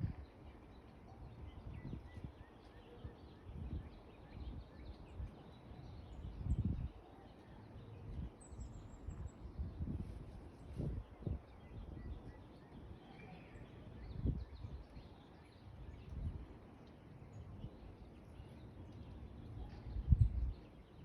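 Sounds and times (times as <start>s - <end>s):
wind gusts on microphone: 0.0s - 0.4s, 1.3s - 2.5s, 6.2s - 7.0s, 8.1s - 12.3s, 14.0s - 15.0s, 15.9s - 16.5s, 19.9s - 20.7s.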